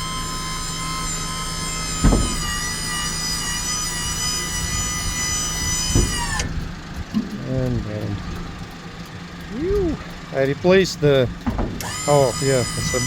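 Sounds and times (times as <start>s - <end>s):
engine low hum: 0.0s - 13.0s
hydraulic pump whining: 0.0s - 13.0s
thump: 2.0s - 2.6s, 5.9s - 6.5s, 11.4s - 11.8s.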